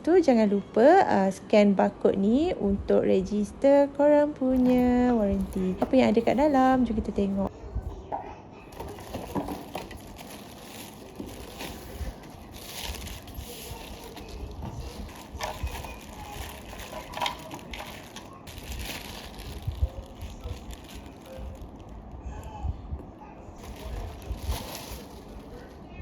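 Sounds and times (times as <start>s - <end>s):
cardboard rustling and crinkling: 4.5s - 7.5s, 8.7s - 22.2s, 23.6s - 26.0s
handling clicks and knocks: 8.8s - 21.9s.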